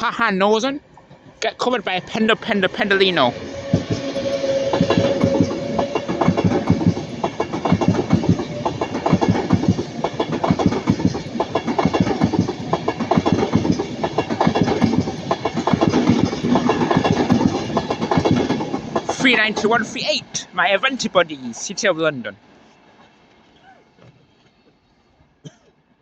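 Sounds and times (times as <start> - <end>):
electric train passing: 0.0 - 23.6
train wheels clattering: 3.3 - 20.0.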